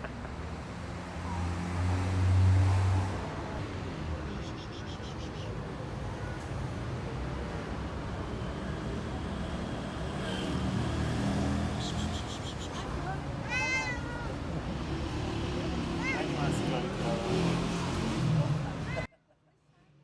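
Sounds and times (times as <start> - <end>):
background traffic hum: 0.0 - 19.1
vehicle passing with low rumble: 7.8 - 13.4, 14.2 - 19.1.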